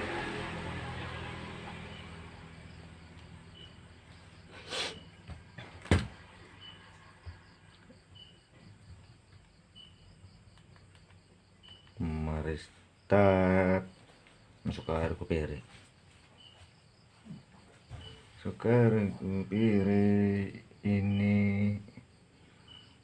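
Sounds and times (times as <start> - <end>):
low hum: 0.0 - 5.6
high insect chirps: 0.2 - 23.0.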